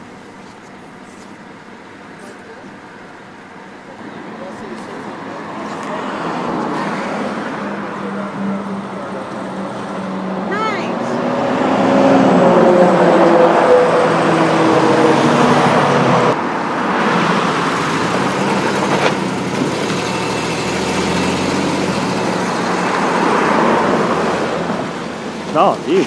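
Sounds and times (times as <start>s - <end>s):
car engine hum: 0.0s - 26.0s
tyre and road noise: 0.0s - 26.0s.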